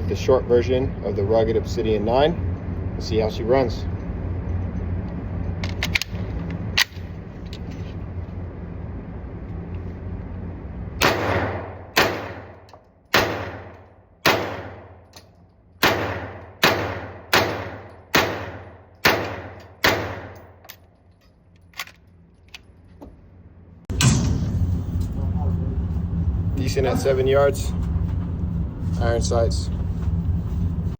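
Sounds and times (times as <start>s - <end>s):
suppressed pistol shots: 11.0s - 15.0s, 15.8s - 20.6s.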